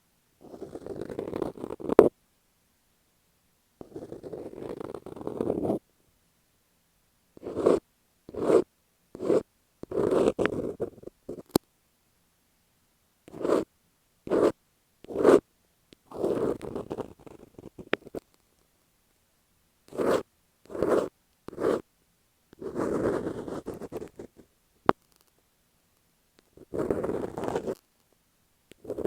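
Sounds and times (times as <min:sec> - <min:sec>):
fingers scratching tape on microphone: 0:00.4 - 0:02.1, 0:03.8 - 0:05.8, 0:07.4 - 0:11.6, 0:13.3 - 0:13.7, 0:14.3 - 0:15.4, 0:16.0 - 0:18.4, 0:19.9 - 0:21.8, 0:22.6 - 0:25.4, 0:26.4 - 0:27.8, 0:28.7 - 0:29.0.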